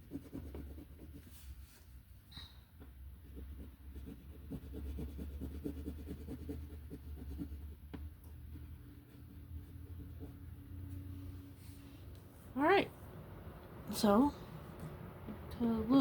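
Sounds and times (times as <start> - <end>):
pencil scratching on paper: 0.0 - 1.7, 3.2 - 10.5
low steady hum: 0.0 - 16.0.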